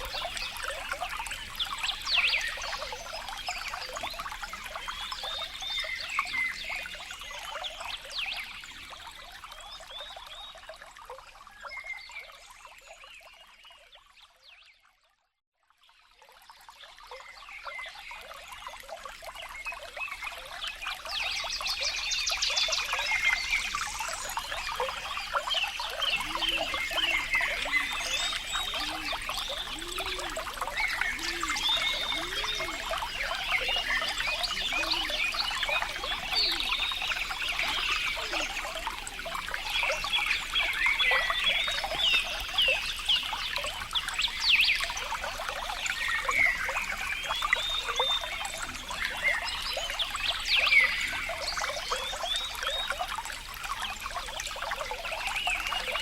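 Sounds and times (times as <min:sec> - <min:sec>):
water trickling and burbling: 0:00.0 - 0:14.6, 0:15.7 - 0:56.0
low croaking calls: 0:22.8 - 0:50.0.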